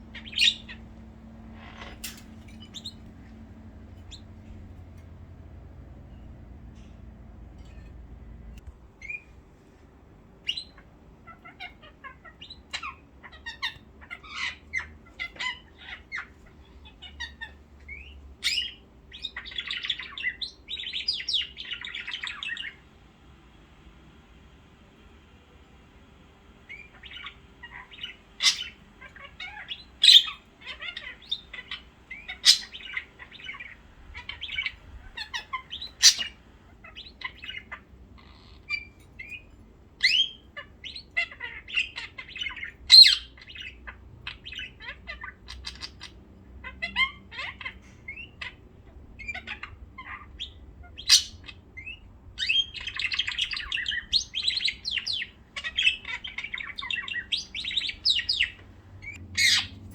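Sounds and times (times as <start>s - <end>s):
sharp loud bird calls: 0.0s - 7.0s, 26.7s - 59.9s
small birds chirping: 0.0s - 9.5s, 10.2s - 59.9s.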